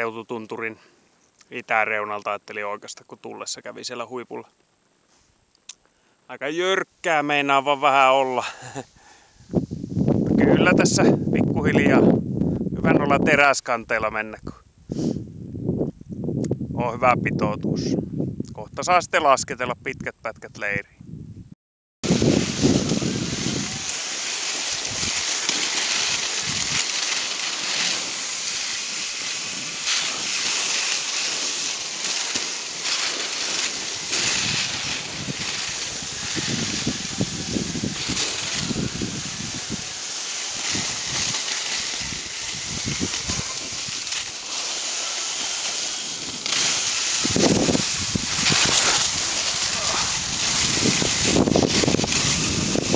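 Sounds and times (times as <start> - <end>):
skis hissing over snow: 7.5 - 10.0, 22.0 - 52.9
wind on microphone: 9.4 - 13.4, 14.5 - 18.9, 20.8 - 28.2, 33.6 - 44.6, 46.0 - 52.9.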